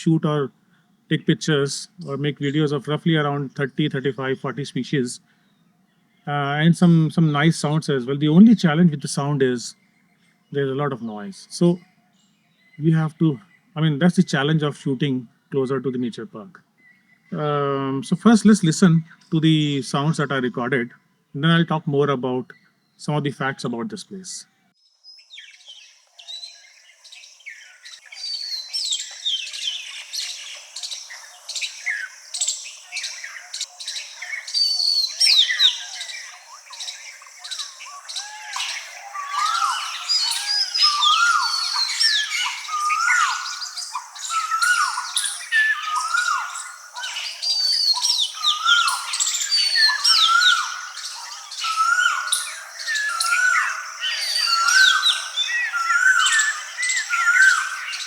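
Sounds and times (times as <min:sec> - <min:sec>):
wild birds calling: 0:00.0 - 0:58.0
low hooked bird call: 0:27.5 - 0:58.0.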